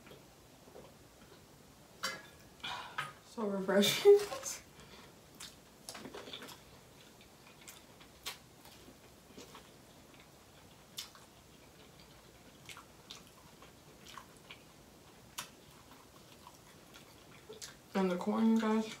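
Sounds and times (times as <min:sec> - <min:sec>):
wet chewing clicks: 0:05.3 - 0:17.9.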